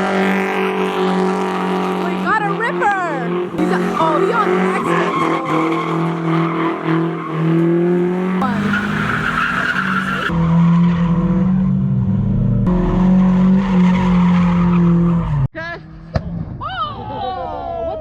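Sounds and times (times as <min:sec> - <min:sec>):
car engine at high revs: 0:00.0 - 0:16.3
tyres squealing: 0:02.1 - 0:10.3.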